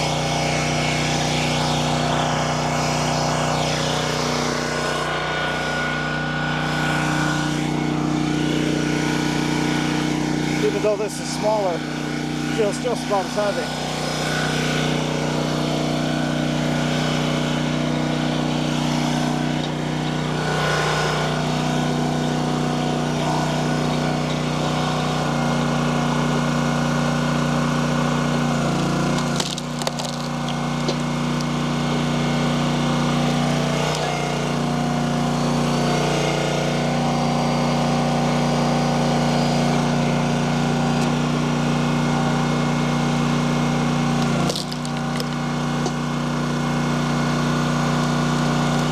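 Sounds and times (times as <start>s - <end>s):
log splitter engine running: 0.0s - 48.9s
wood cracking and splitting: 27.6s - 34.1s, 44.0s - 48.9s.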